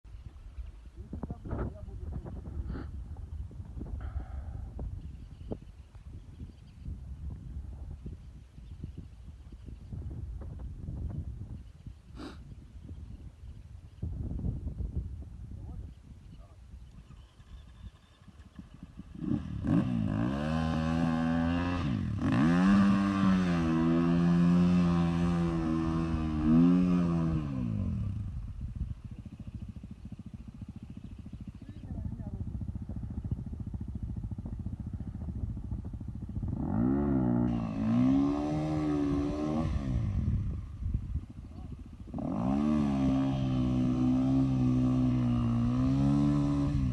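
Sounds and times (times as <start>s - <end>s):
motorcycle engine revving: 16.9s - 46.9s.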